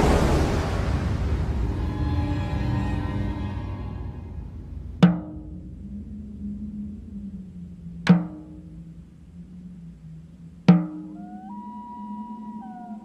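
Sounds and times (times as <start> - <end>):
heavy percussive hits: 0.0 - 5.6
low held tone: 0.0 - 13.0.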